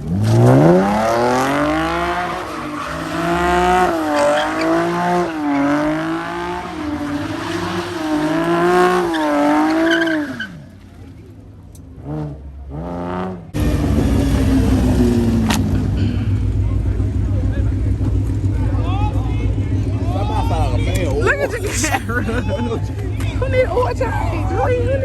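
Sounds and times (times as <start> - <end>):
car engine revving: 0.0 - 10.8, 11.9 - 18.5
rush of car noise: 0.0 - 17.2, 19.8 - 24.4.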